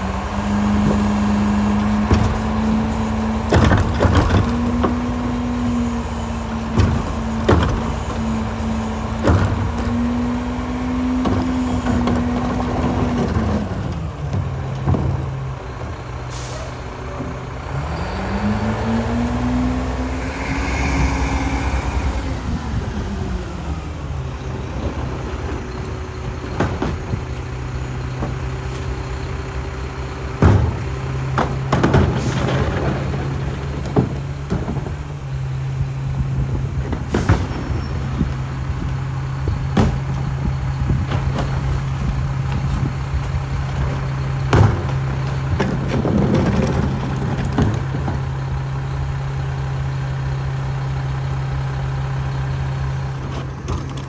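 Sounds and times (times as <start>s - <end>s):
garbage truck diesel engine revving: 0.0s - 54.0s
clanks and knocks: 1.8s - 16.2s, 24.8s - 29.4s, 30.3s - 35.4s, 36.5s - 48.6s
air hiss: 19.8s - 23.2s.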